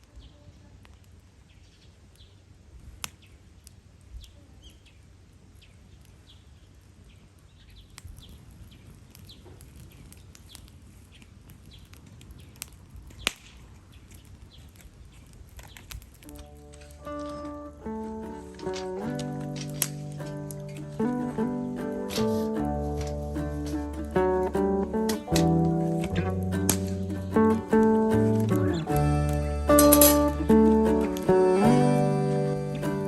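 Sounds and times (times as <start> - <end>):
low outdoor rumble: 0.0 - 33.0
small birds chirping: 0.0 - 33.0
sharp cracks: 7.8 - 33.0
music: 16.5 - 33.0.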